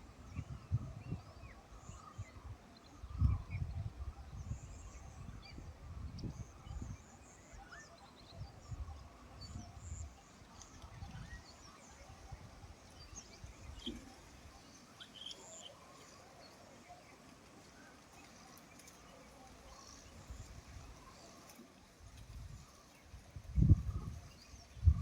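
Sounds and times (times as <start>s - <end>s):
wind rumbling on microphone: 0.0s - 14.7s, 22.0s - 25.0s
small birds chirping: 0.2s - 25.0s.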